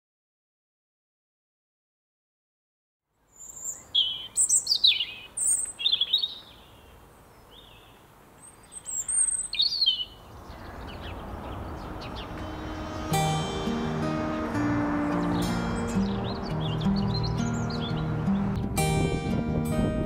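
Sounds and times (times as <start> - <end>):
small birds chirping: 3.2 - 18.9
music: 12.2 - 20.0.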